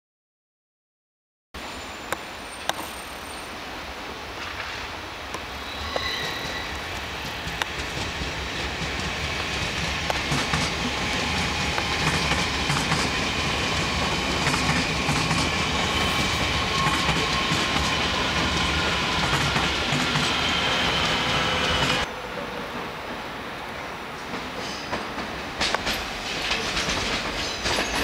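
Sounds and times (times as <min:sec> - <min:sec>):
train high whine: 0:01.6 - 0:28.0
wheels clattering over rail joints: 0:24.3 - 0:28.0.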